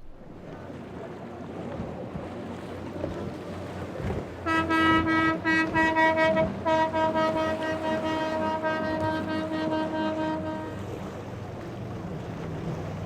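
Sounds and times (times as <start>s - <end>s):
water noise: 0.0s - 13.0s
wind: 0.0s - 13.0s
boat horn blasts: 2.8s - 11.4s.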